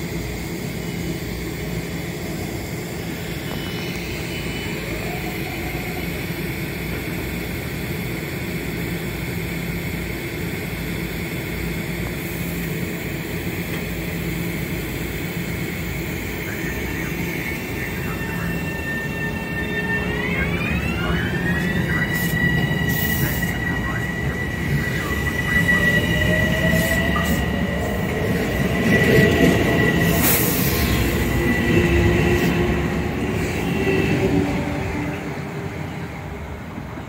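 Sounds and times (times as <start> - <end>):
electric train humming and rumbling: 0.0 - 37.0
traction motor whine: 14.7 - 36.1.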